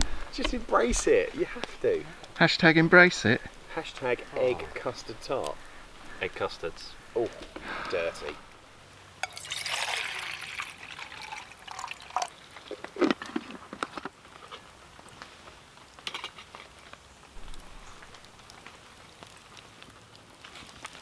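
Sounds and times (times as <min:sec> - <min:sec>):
water dripping: 0:00.0 - 0:12.9, 0:17.4 - 0:19.5.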